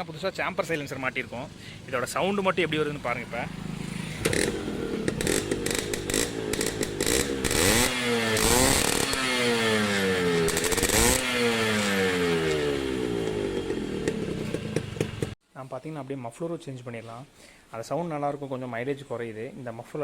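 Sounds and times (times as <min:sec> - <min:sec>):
motorcycle engine idling and revving: 0:00.0 - 0:15.4.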